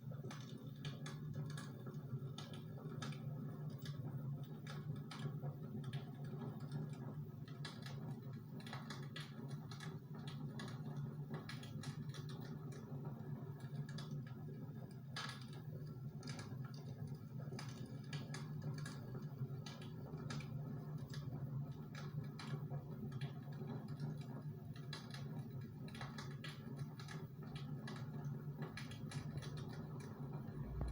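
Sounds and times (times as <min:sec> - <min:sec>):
steady low hum: 0:30.0 - 0:30.9.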